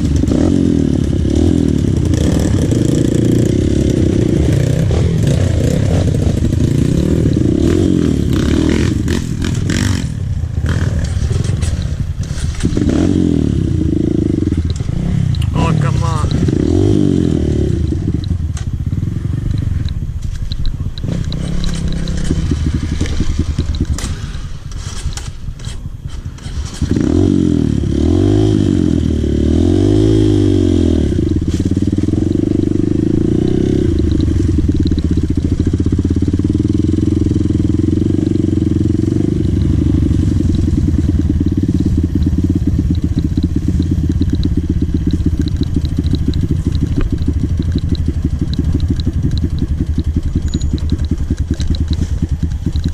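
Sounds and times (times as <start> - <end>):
dirt bike engine revving: 0.0 - 20.2, 20.8 - 52.9
clattering and scraping: 10.7 - 12.9, 20.2 - 27.0.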